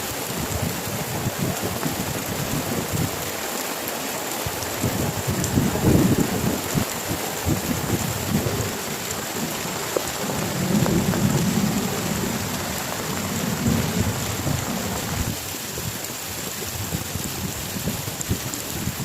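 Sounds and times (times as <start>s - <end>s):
heavy rain falling: 0.0s - 19.0s
rolling thunder: 4.5s - 15.4s.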